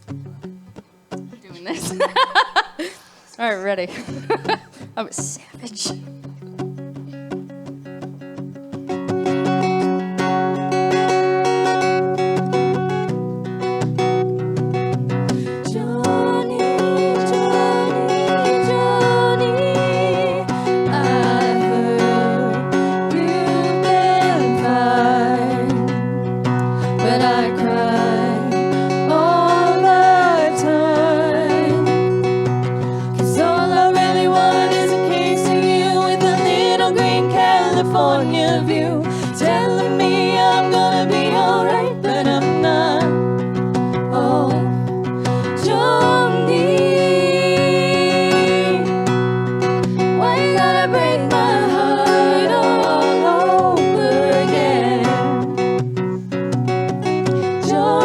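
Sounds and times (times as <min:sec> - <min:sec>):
acoustic guitar: 0:00.0 - 0:58.0
voices singing in harmony: 0:15.3 - 0:55.8, 0:57.0 - 0:58.0.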